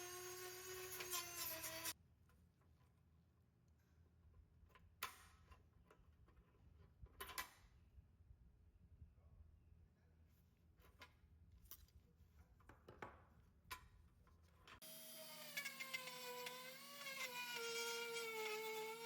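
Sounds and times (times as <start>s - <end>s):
power tool motor whining: 0.0s - 1.9s, 14.8s - 19.0s.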